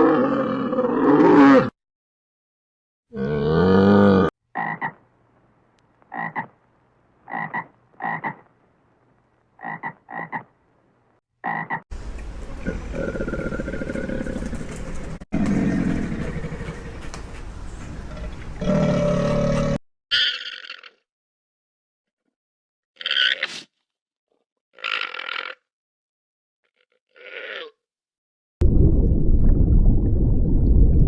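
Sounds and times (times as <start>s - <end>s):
frog croaking: 4.5s - 5.0s, 6.1s - 6.6s, 7.2s - 8.5s, 9.6s - 10.5s, 11.4s - 11.8s, 24.8s - 25.7s.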